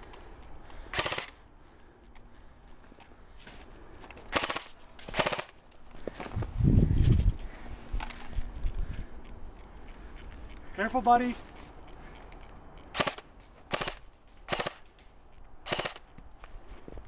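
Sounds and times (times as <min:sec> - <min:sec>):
airsoft rifle automatic fire: 0:00.9 - 0:01.4, 0:04.3 - 0:05.6, 0:13.0 - 0:14.8, 0:15.7 - 0:16.0.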